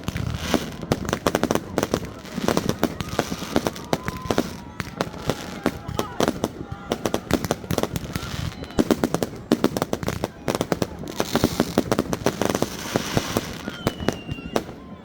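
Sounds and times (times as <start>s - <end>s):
firework whistles: 0.0s - 15.0s
fireworks bangs: 0.0s - 15.0s
fireworks crackling: 0.0s - 15.0s.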